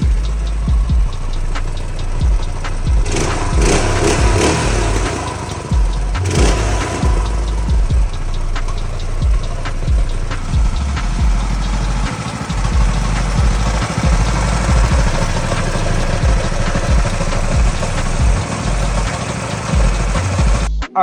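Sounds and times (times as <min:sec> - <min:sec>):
mini bike engine running: 0:02.1 - 0:20.7.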